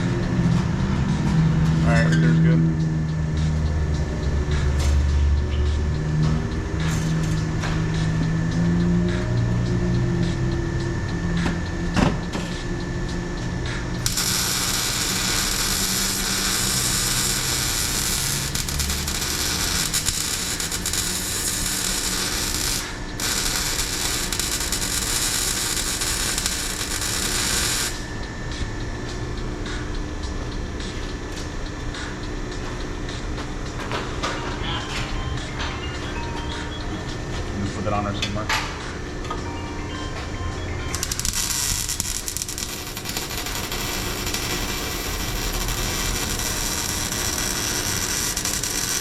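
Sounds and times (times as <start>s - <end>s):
workshop background noise: 0.0s - 49.0s
welder crackling hiss: 14.0s - 28.0s, 40.9s - 49.0s.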